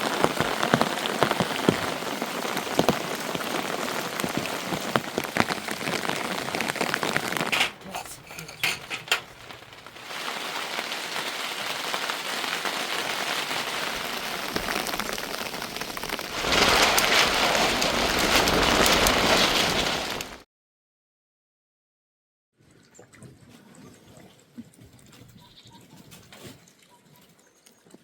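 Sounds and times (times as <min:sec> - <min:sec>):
rain falling: 0:00.0 - 0:20.4.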